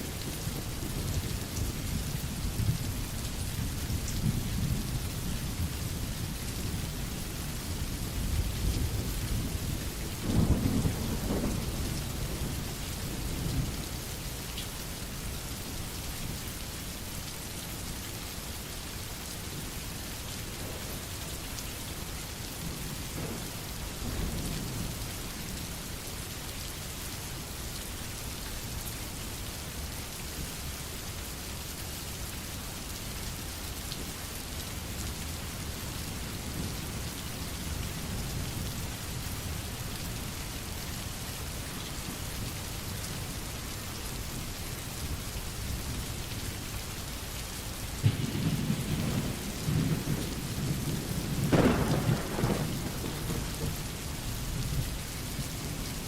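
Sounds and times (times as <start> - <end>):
low rumbles of thunder: 0.0 - 14.0, 22.6 - 25.9, 48.0 - 56.0
steady rain falling: 0.0 - 56.0.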